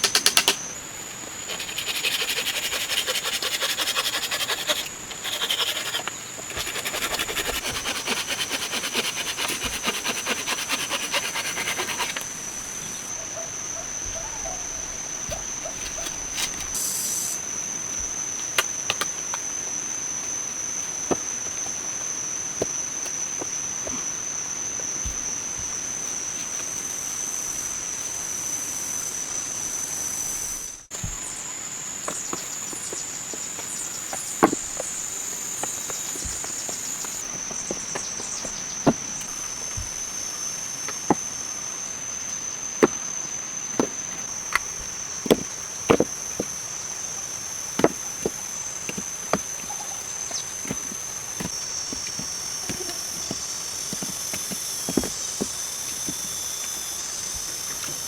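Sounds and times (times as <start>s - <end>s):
sharp clicks and knocks: 0.0s - 0.6s
insects droning: 0.0s - 58.0s.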